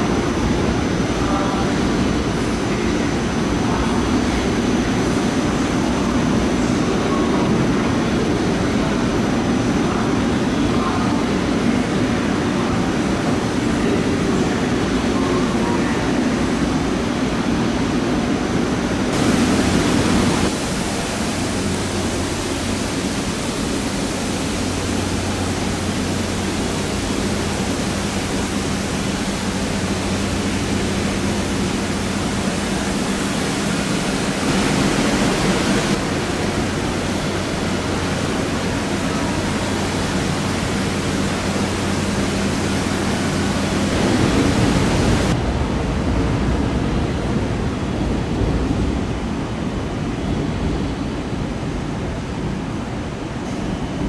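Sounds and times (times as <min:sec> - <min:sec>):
heavy rain hissing: 0:00.0 - 0:45.5.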